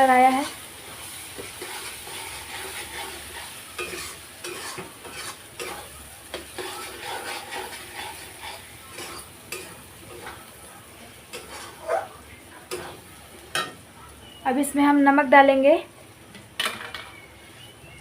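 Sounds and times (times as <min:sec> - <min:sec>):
spices sizzling in oil: 0:00.0 - 0:18.0
spoon scraping against pan: 0:00.2 - 0:10.6, 0:11.3 - 0:13.8.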